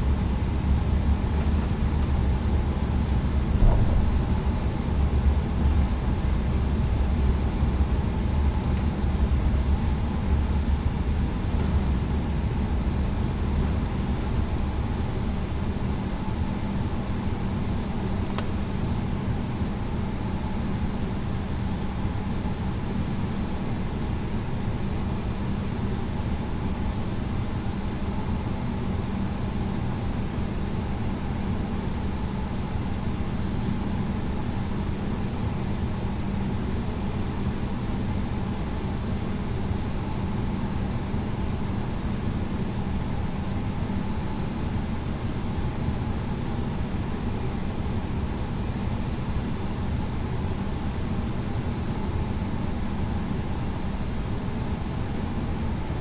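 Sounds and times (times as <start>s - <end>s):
aircraft engine hum: 0.0s - 15.2s
rush of air: 3.5s - 6.6s.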